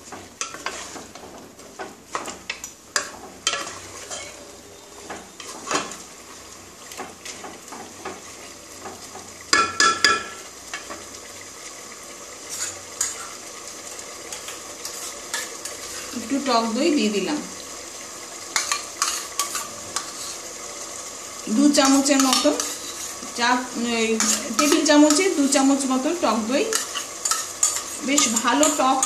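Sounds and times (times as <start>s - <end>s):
spatula scraping a pot: 0.0s - 6.0s, 12.5s - 13.5s, 14.3s - 16.2s, 18.5s - 20.4s, 21.8s - 23.3s, 24.2s - 25.5s, 26.6s - 29.0s
chicken sizzling in oil: 0.0s - 29.0s.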